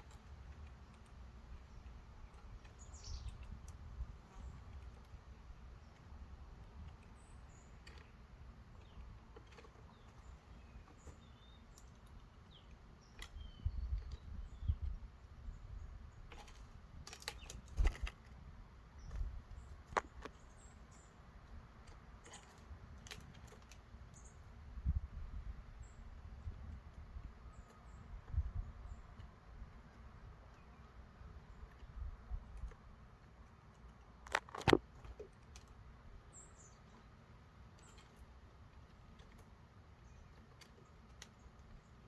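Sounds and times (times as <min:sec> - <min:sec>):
birds tapping on wooden feeder: 0:00.0 - 0:42.0
songbirds chirping: 0:00.0 - 0:42.0
low wind rumble: 0:13.3 - 0:20.3, 0:24.5 - 0:30.4.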